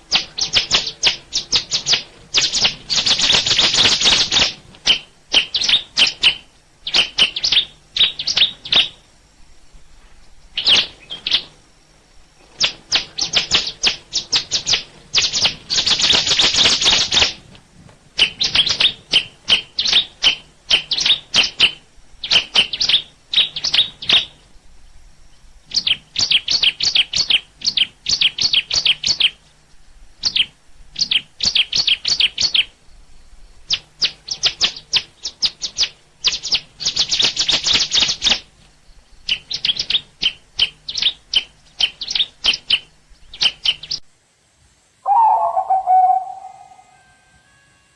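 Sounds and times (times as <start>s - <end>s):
bird chirping rapidly: 0.1s - 9.0s, 18.2s - 24.4s, 39.2s - 44.0s, 45.0s - 47.2s.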